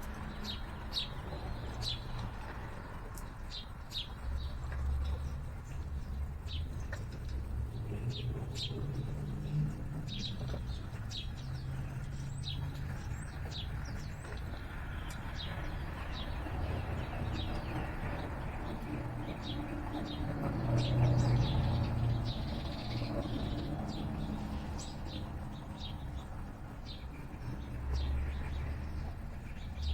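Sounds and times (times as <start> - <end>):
small songbirds chirping: 0.0 - 29.9.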